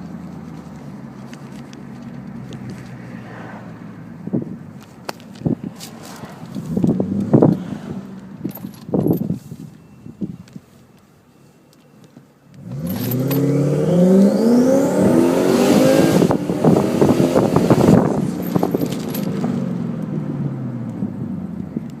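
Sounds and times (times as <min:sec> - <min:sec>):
car engine revving with crackles: 0:04.8 - 0:09.3, 0:12.6 - 0:22.0.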